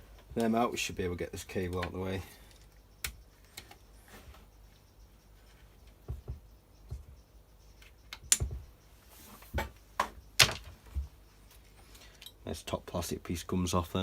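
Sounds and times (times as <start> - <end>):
hand tools and plastic parts clicking: 1.5 - 3.8, 7.7 - 8.6.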